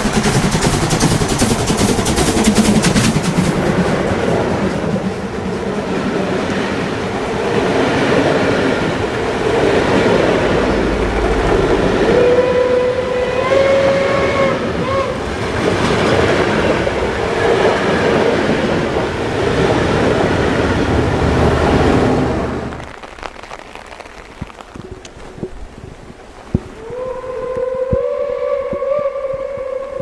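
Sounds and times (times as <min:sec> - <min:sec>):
wheels clattering on rails: 0:00.0 - 0:14.0
steam locomotive working: 0:00.0 - 0:22.7
steam locomotive whistle: 0:10.6 - 0:15.7, 0:26.8 - 0:30.0.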